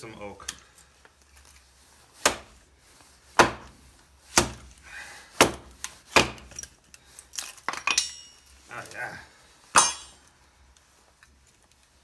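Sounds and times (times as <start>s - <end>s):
axe chopping kindling: 2.2s - 2.6s, 3.4s - 4.8s, 5.4s - 6.6s.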